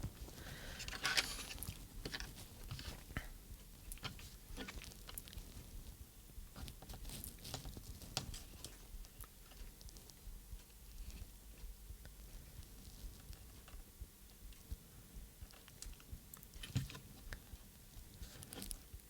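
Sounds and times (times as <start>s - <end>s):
small clicks and rustles: 0.0s - 19.0s.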